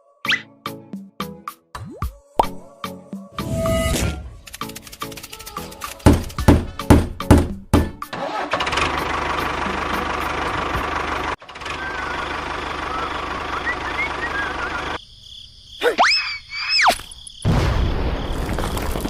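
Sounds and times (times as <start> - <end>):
whooshing sound effect: 3.4 - 4.6
small engine running: 8.2 - 15.0.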